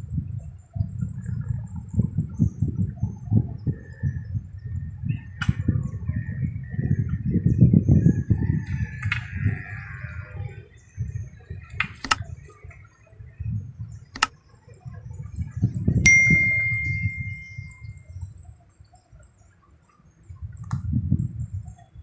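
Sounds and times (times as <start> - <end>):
sharp clicks: 11.8 - 12.3, 14.2 - 14.4
bright metallic ding: 16.1 - 17.9.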